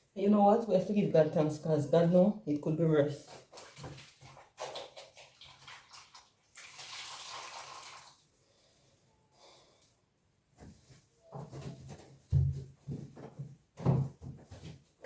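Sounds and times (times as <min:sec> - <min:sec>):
water splashing and trickling: 0:03.2 - 0:08.3
knocks and rustles of floor cleaning: 0:10.6 - 0:15.0.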